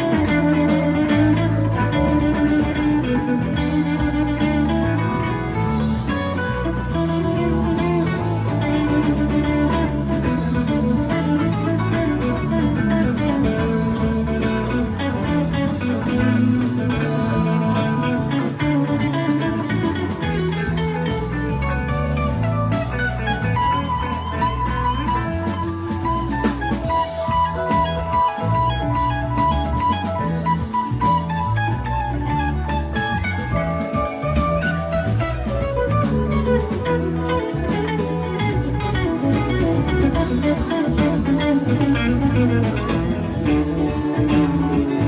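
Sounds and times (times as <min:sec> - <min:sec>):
bass line: 0:00.0 - 0:45.0
electric guitar soloing: 0:00.0 - 0:45.0.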